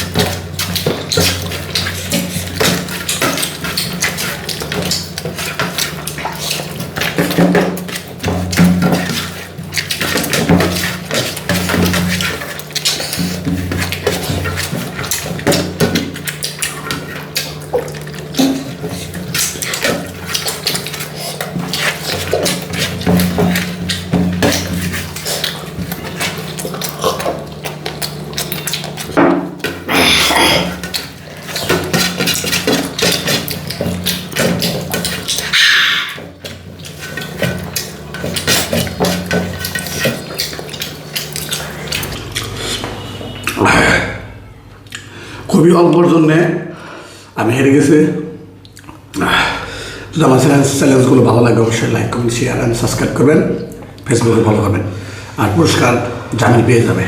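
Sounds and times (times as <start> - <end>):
loud rustling or splashing: 0.0 - 42.4
person eating and chewing: 0.0 - 42.8.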